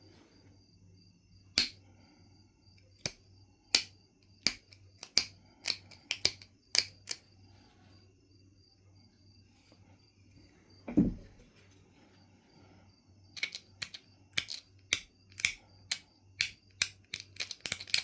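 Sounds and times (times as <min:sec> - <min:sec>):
flint knapping clicks: 0:01.6 - 0:01.8, 0:02.8 - 0:07.2, 0:13.4 - 0:18.0.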